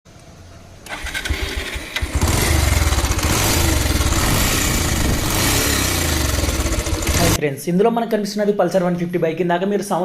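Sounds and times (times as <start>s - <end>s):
motorcycle engine clattering: 0.9s - 7.4s.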